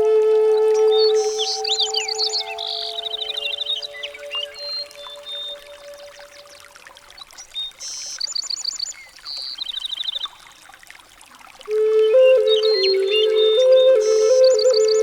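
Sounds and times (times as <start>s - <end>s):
running water: 0.0s - 15.0s
small birds chirping: 1.0s - 10.7s.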